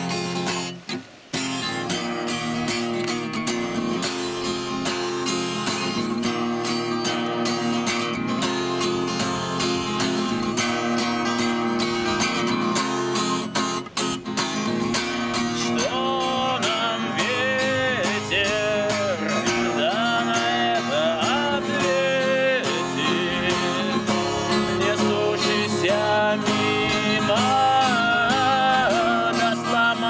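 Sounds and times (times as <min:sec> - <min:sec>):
acoustic guitar strumming: 0:00.0 - 0:30.0.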